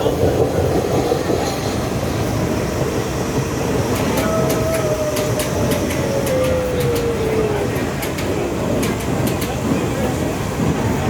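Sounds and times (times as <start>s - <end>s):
subway train rumble: 0.0s - 11.0s
whine sliding lower: 3.8s - 9.4s
sharp clicks: 3.9s - 7.2s.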